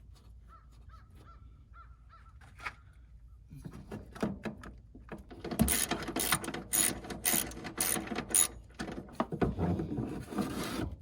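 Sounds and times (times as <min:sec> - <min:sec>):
tools and parts clicking and rattling: 0:03.8 - 0:09.6
ratchet wrench ratcheting: 0:05.4 - 0:08.7.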